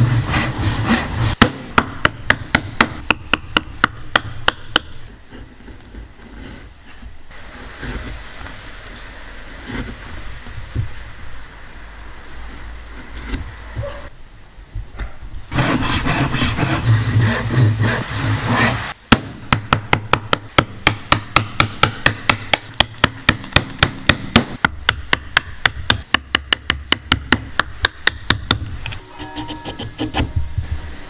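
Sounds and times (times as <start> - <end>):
tool scraping wood: 0.0 - 1.4, 4.9 - 11.1, 15.5 - 19.0, 28.9 - 30.4
hammer striking wood: 0.8 - 5.0, 19.1 - 28.7.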